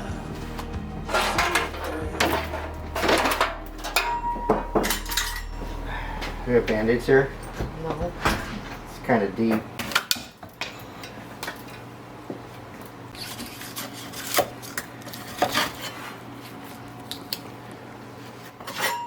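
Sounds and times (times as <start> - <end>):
household objects clinking and rubbing: 0.0 - 9.7
steady low hum: 0.0 - 13.1.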